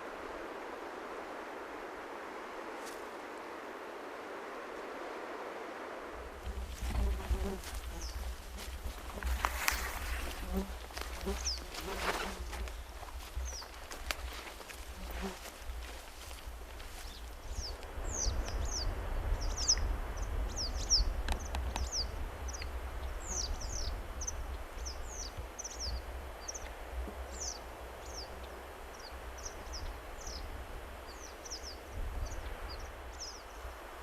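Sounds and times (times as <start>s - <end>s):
running water hiss: 0.0s - 34.0s.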